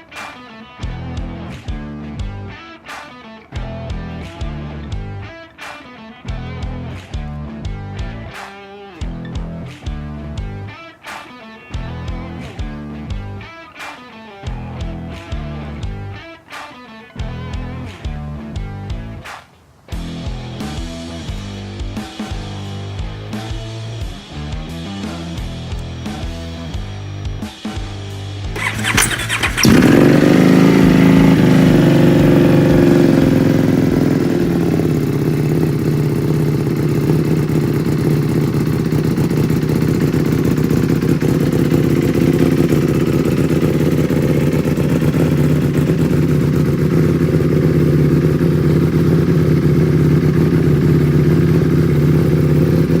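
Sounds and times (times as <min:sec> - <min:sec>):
motorcycle engine idling: 0:28.6 - 0:53.0
motorcycle starter cranking: 0:28.6 - 0:53.0.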